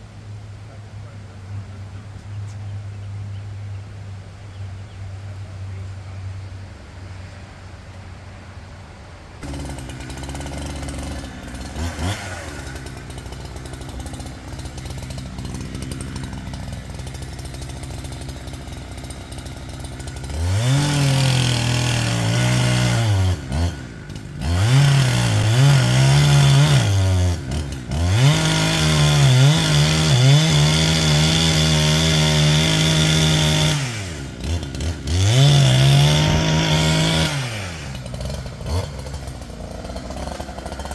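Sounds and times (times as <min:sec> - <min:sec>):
chainsaw running: 0:09.4 - 0:40.9.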